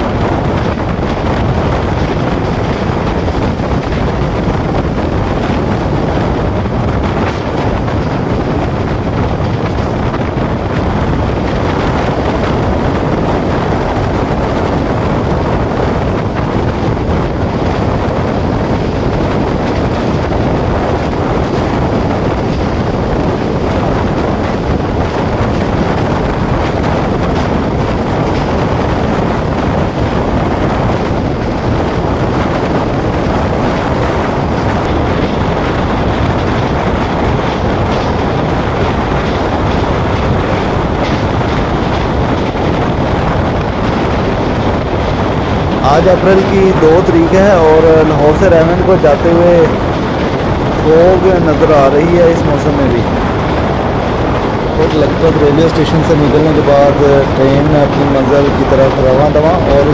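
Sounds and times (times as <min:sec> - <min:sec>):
train running noise: 0:00.0 - 0:59.9
wind buffeting microphone: 0:00.0 - 0:59.9.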